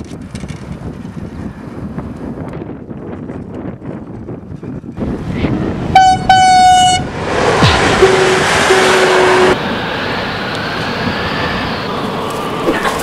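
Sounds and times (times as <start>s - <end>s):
train rushing past: 5.0s - 13.0s
train horn blast: 5.9s - 9.6s.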